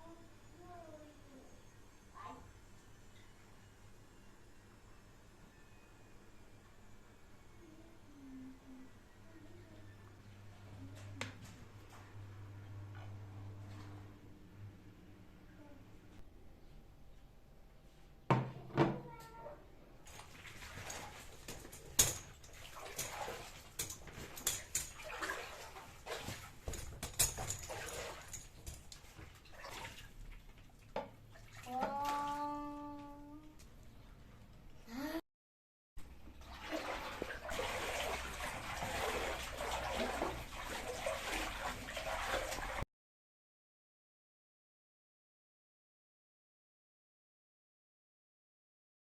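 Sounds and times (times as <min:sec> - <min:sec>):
water running and splashing: 0:20.1 - 0:32.3, 0:36.4 - 0:42.8.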